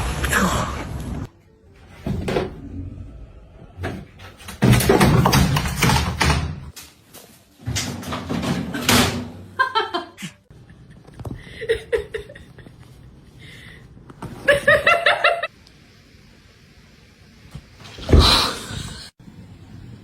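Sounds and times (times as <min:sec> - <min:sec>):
person laughing: 0:09.6 - 0:13.0.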